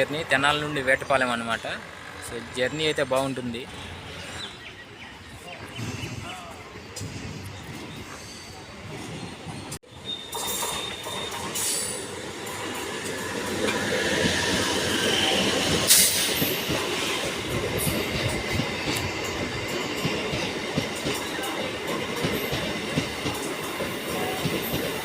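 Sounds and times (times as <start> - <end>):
train wheels rumbling on rails: 5.7 - 25.0
wheel squeal: 9.9 - 12.0.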